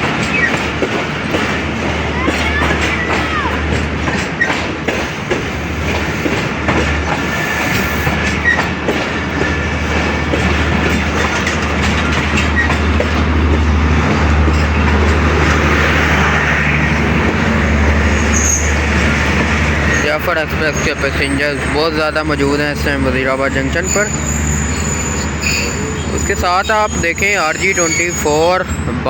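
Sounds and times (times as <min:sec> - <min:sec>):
train wheels clicking over rail joints: 0:00.0 - 0:28.8
wheel squeals: 0:00.2 - 0:00.7, 0:07.3 - 0:13.2, 0:18.1 - 0:19.1, 0:23.4 - 0:28.9.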